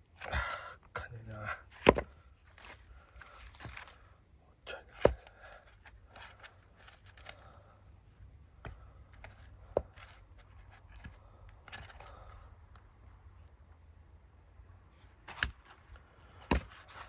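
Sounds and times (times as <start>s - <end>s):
axe chopping firewood: 1.8s - 2.7s, 4.7s - 5.6s, 15.2s - 17.0s
wood knocking and rustling: 15.2s - 17.0s.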